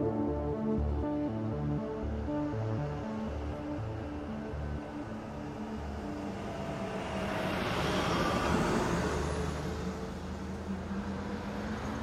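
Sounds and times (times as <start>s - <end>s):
vehicle passing: 4.1s - 12.0s.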